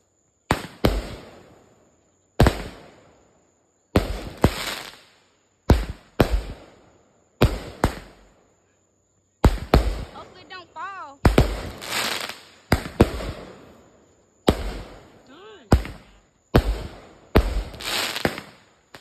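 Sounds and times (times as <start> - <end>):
firework bangs: 0.5 - 1.6, 2.4 - 3.1, 3.9 - 6.8, 7.4 - 8.3, 9.4 - 19.0.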